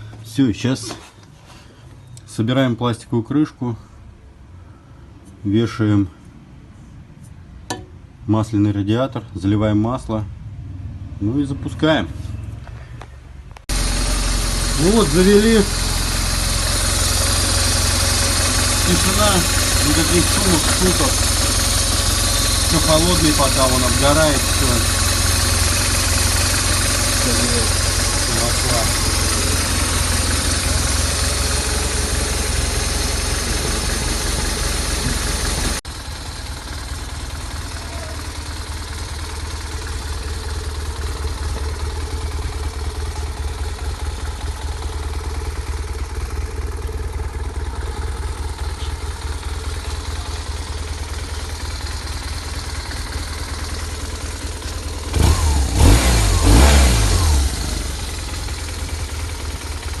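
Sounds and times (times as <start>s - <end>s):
motorcycle engine idling: 12.3s - 60.0s.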